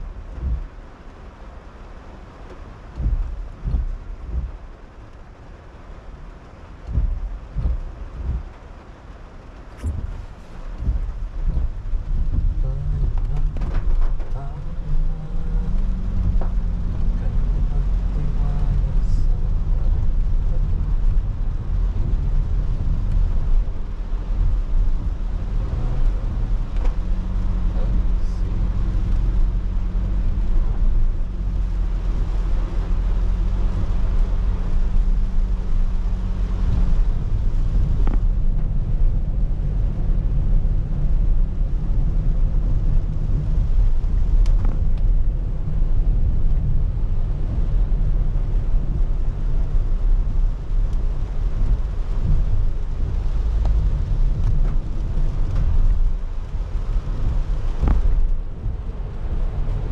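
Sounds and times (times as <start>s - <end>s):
car road and engine rumble: 0.0s - 59.9s
steady hum: 0.0s - 59.9s
wet tyres and rain hiss: 0.0s - 59.9s.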